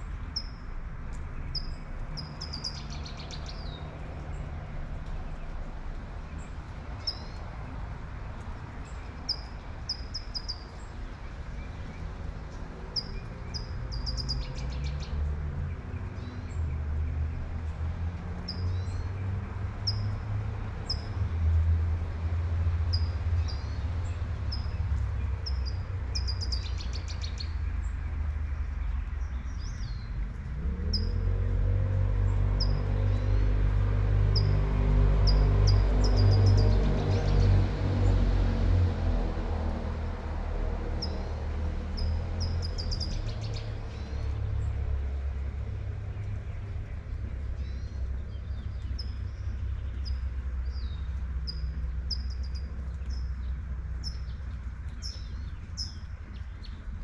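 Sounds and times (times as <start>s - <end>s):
low traffic rumble: 0.0s - 57.0s
birds chirping: 1.3s - 4.4s, 8.8s - 15.2s, 41.0s - 44.8s, 46.0s - 57.0s
vehicle passing: 29.8s - 57.0s.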